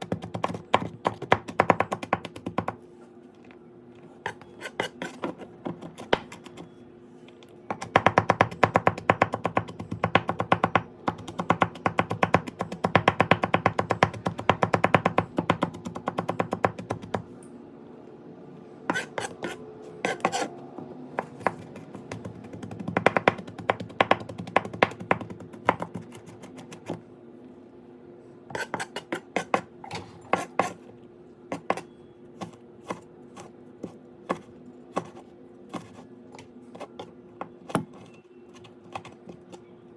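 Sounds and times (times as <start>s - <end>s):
knife chopping on cutting board: 18.9s - 20.5s, 28.5s - 30.8s.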